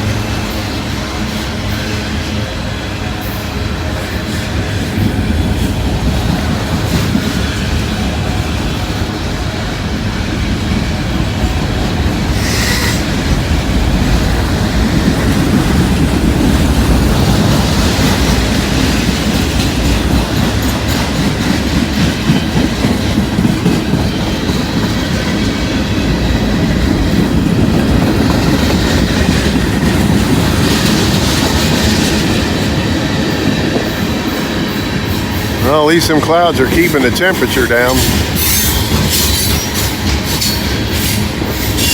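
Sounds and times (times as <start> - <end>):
train wheel squeal: 0.0 - 41.9
train wheels clacking over rail joints: 10.7 - 41.9.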